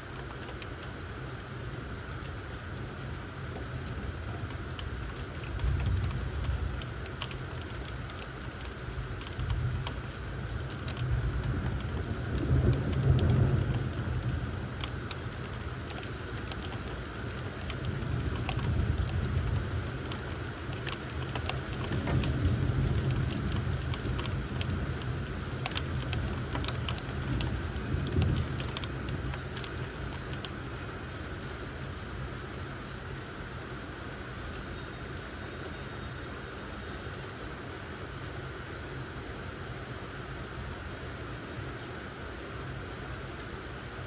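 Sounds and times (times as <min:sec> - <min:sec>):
steady rain: 0:00.0 - 0:44.0
low thunder rumbles: 0:03.8 - 0:07.1, 0:08.9 - 0:30.9.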